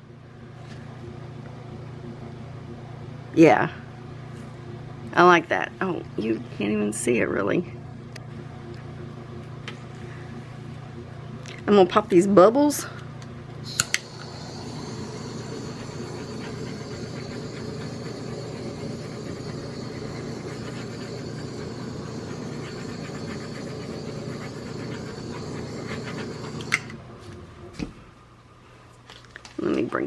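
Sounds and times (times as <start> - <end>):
heat tool blowing: 13.6 - 27.0.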